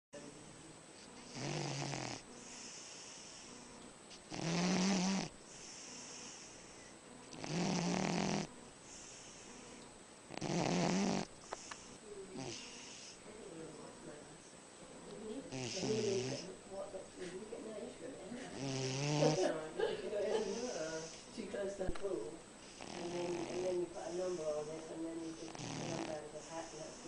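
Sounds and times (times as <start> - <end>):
dog snoring: 1.2 - 13.2, 15.5 - 16.5, 18.4 - 19.6, 22.6 - 27.0
breath hissing: 2.4 - 4.3, 7.7 - 9.8.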